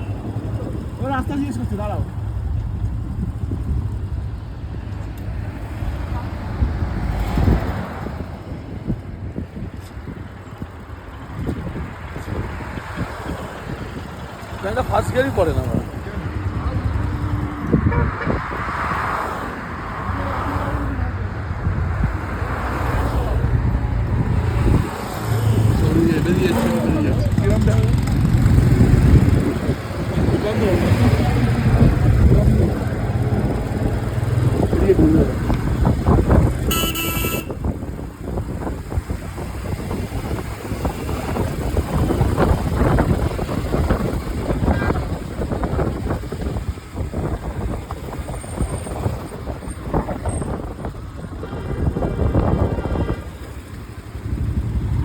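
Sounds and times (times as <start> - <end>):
motorcycle engine rumbling: 0.0 - 55.0
road and wind noise: 0.0 - 55.0.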